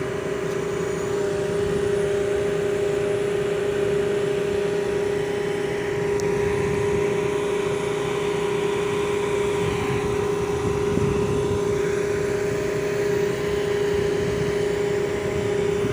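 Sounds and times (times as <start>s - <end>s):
concrete pump running: 0.0s - 15.9s.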